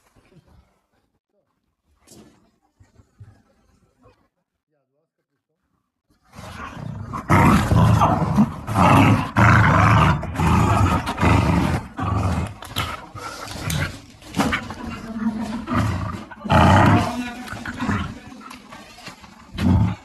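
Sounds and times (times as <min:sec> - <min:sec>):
dogs growling: 0:06.2 - 0:20.0.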